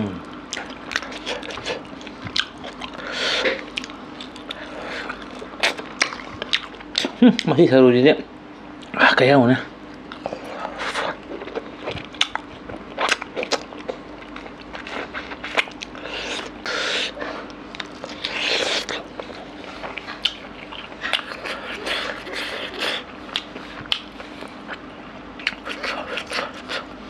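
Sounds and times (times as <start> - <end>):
faint steady hum: 0.0 - 27.0
close chewing: 0.4 - 7.5, 9.9 - 27.0
wet lip smacks and mouth clicks: 22.9 - 24.2.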